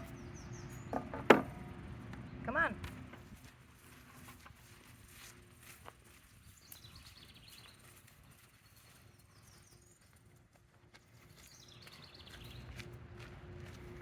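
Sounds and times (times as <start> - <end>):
small bird singing: 0.0 - 1.1, 6.4 - 10.2, 11.3 - 12.7.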